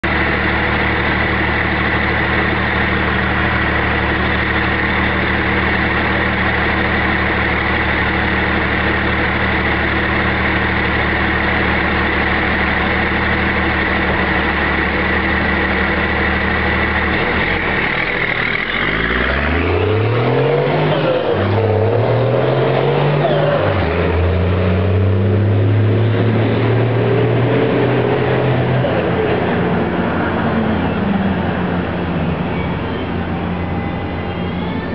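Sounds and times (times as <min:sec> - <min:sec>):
diesel truck engine idling and revving: 0:00.0 - 0:34.9
turbo high whine: 0:27.7 - 0:34.9.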